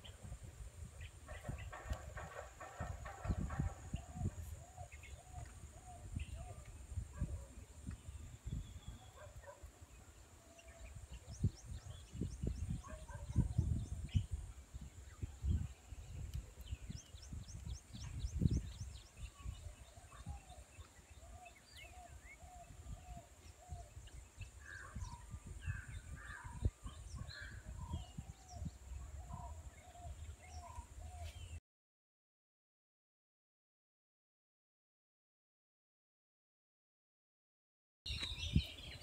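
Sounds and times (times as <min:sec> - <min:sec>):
birds calling: 0:01.0 - 0:14.4
low gusty rumbling: 0:01.2 - 0:04.8.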